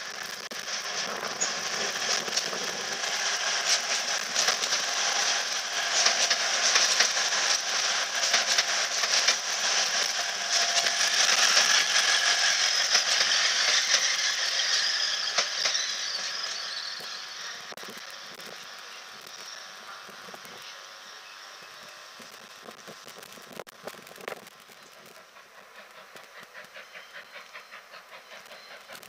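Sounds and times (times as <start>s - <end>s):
train rushing past: 0.0s - 17.7s
wheels clattering over rail joints: 0.9s - 16.7s.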